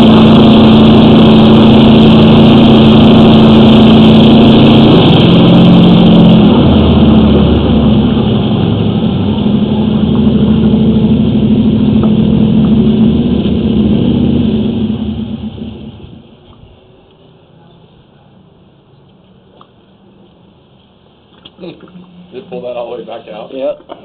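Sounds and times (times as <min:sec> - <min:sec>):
engine running loudly: 0:00.0 - 0:16.4.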